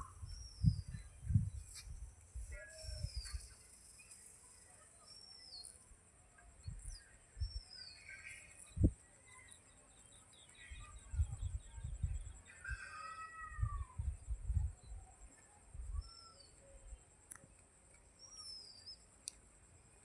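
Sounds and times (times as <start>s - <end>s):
birds whistling and chirping: 0.0s - 1.9s, 2.6s - 4.2s, 6.6s - 13.8s, 15.8s - 16.8s, 18.2s - 19.0s.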